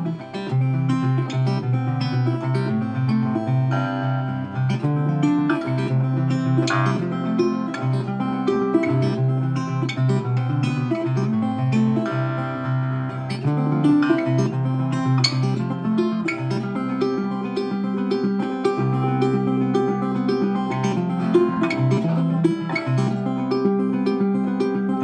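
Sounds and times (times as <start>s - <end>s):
plucked guitar notes: 0.0s - 25.0s.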